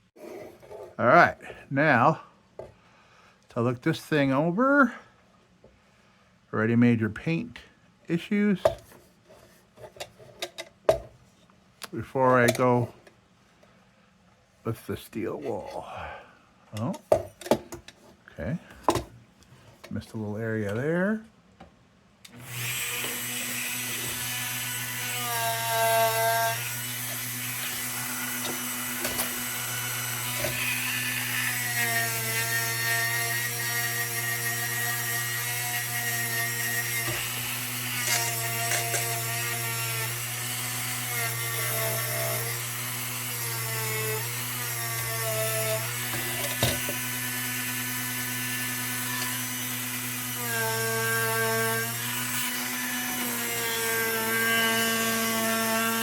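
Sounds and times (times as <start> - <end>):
electric power tool humming: 22.3 - 56.0.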